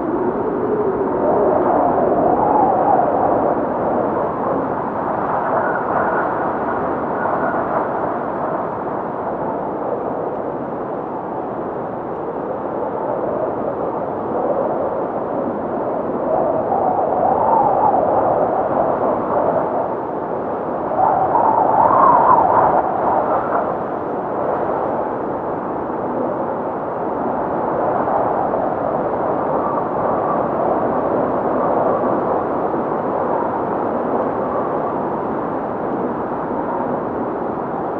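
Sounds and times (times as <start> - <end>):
blizzard wind howling: 0.0 - 37.9
high wind whistle: 15.3 - 24.8.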